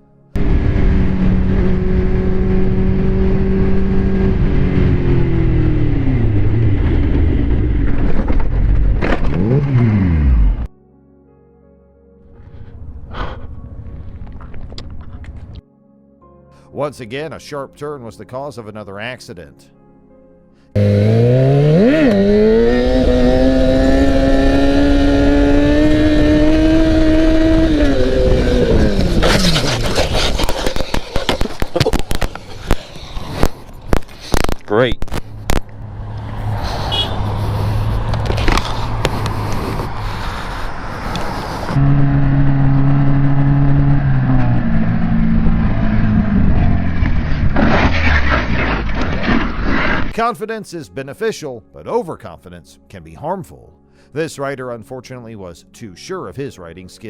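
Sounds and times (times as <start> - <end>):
motorcycle engine revving: 0.4 - 10.7, 20.8 - 32.5, 35.2 - 49.5
exhaust cracks: 3.7 - 10.7, 20.8 - 50.2.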